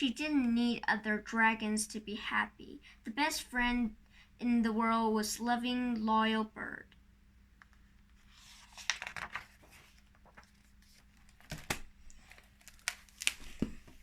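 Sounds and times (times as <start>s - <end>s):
soft rustling: 7.7s - 14.0s.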